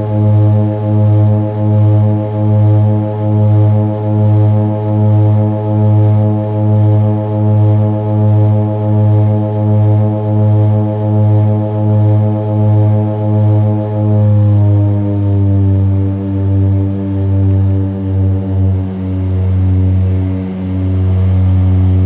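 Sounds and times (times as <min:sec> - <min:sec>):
propeller engines droning: 0:00.0 - 0:22.0.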